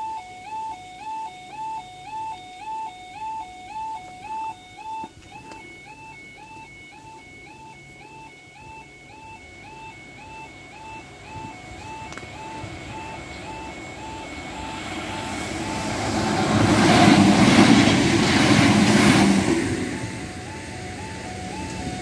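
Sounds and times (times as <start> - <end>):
level crossing alarm two-note yodel: 0.0 - 22.0
electric train passing with hum: 9.6 - 22.0.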